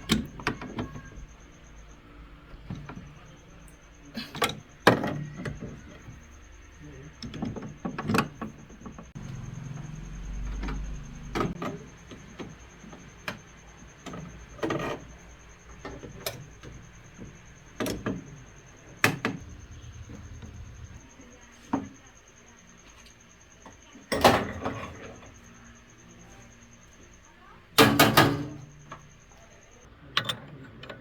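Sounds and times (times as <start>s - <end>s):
knocks and clatters on a machine: 4.2s - 21.0s, 24.0s - 25.3s, 27.8s - 29.3s.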